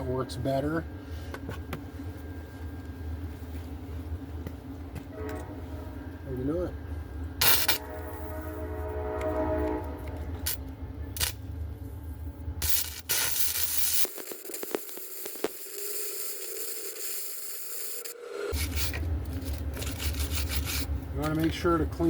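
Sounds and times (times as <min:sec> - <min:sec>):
welder arc crackling and sizzling: 0:12.6 - 0:19.3.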